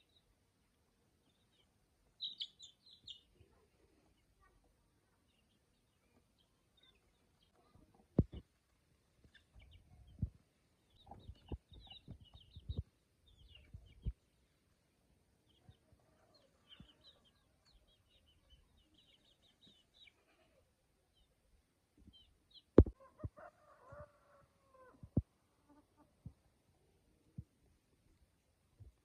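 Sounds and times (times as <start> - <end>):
birds chirping: 1.2 - 4.5, 9.2 - 14.7, 15.4 - 21.4.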